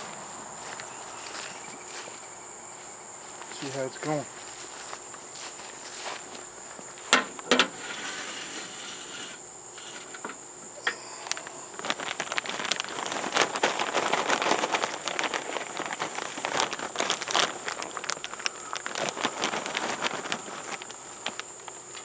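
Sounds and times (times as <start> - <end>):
high insect drone: 0.0 - 22.0
wood chips pattering into pan: 10.7 - 22.0.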